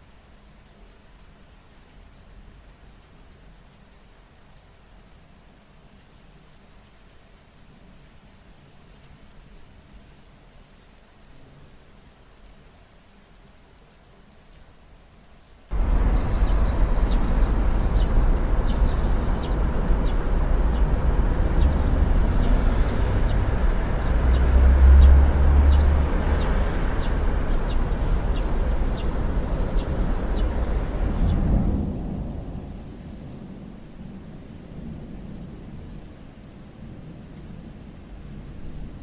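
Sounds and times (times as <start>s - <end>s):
rain: 0.0s - 39.0s
low rumble of thunder: 15.7s - 39.0s.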